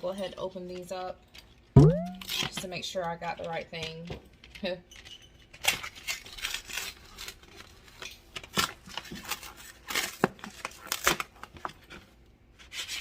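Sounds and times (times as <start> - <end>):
packaging torn open and rustling: 5.4 - 12.0.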